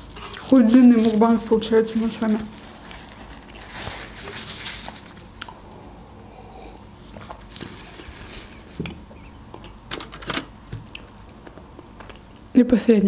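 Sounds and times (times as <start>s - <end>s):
person chewing soft food: 0.0s - 0.5s, 5.0s - 8.6s, 10.6s - 12.6s.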